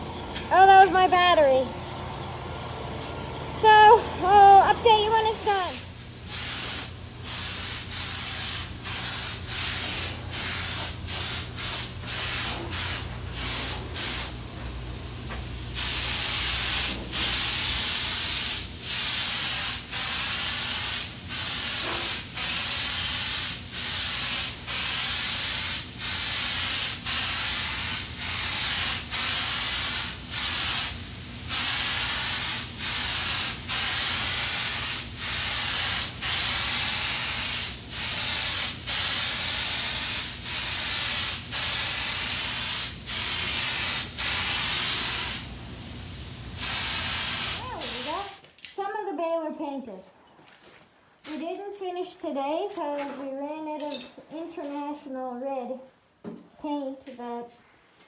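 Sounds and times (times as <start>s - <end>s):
steady low hum: 0.0s - 18.9s
spray gun hissing bursts: 5.1s - 48.4s.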